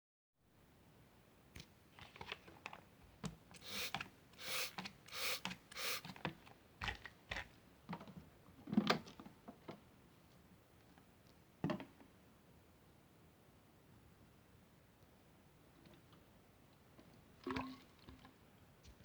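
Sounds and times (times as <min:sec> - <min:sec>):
short hissing rushes: 0:03.6 - 0:06.1.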